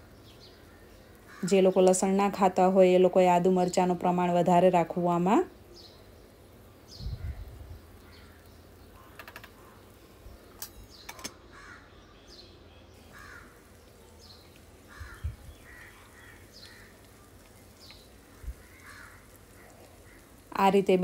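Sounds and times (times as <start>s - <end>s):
faint clicks: 8.0s - 9.6s, 13.2s - 20.5s
birds making harsh calls: 10.9s - 20.5s.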